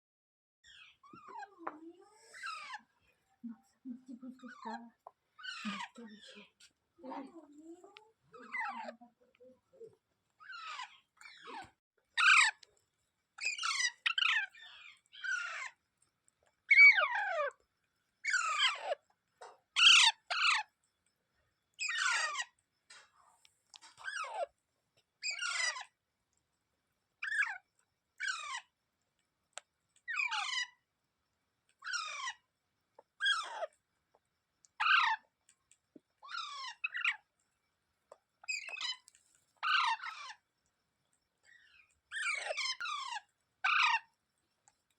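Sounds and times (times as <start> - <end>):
parakeet harsh calls: 2.4 - 2.9, 5.4 - 6.5, 10.4 - 11.6, 12.2 - 12.6, 13.4 - 15.8, 16.7 - 17.5, 18.2 - 19.0, 19.8 - 20.7, 21.8 - 22.5, 24.0 - 24.5, 25.2 - 25.9, 27.2 - 27.6, 28.2 - 28.7, 30.1 - 30.8, 31.8 - 32.4, 33.2 - 33.7, 34.8 - 35.2, 36.2 - 37.2, 39.6 - 40.4, 41.7 - 44.1.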